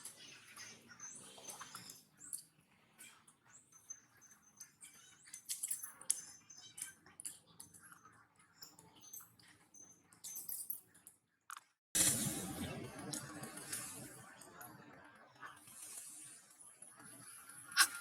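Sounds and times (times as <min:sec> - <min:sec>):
monkeys squeaking: 0:17.8 - 0:18.0.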